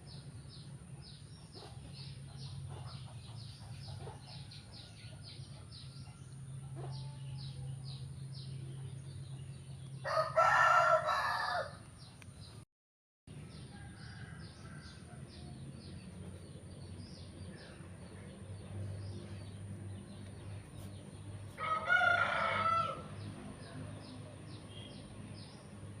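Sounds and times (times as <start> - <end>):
rooster crowing: 10.0 - 11.8, 13.6 - 15.5, 21.6 - 23.2.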